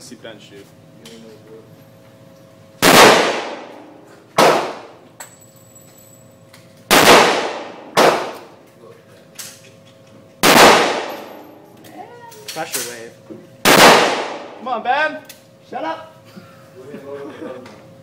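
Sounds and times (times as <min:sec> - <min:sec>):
pistol shots with ringing echo: 0:02.8 - 0:05.0, 0:06.9 - 0:08.6, 0:10.4 - 0:11.5, 0:13.6 - 0:14.6.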